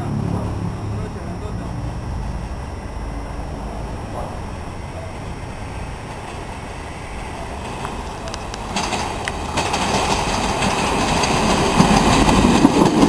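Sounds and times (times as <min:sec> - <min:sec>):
electric train rumble: 0:00.0 - 0:13.0
wheels on rails: 0:00.2 - 0:13.0
rail clicks: 0:03.9 - 0:13.0.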